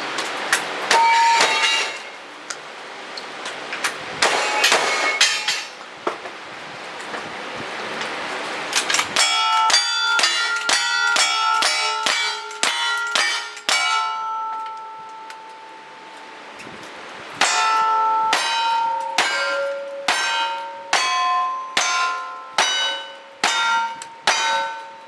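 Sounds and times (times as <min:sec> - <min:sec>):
steel targets clanging: 0:00.4 - 0:02.2, 0:04.2 - 0:05.8, 0:08.5 - 0:16.4, 0:17.4 - 0:25.0.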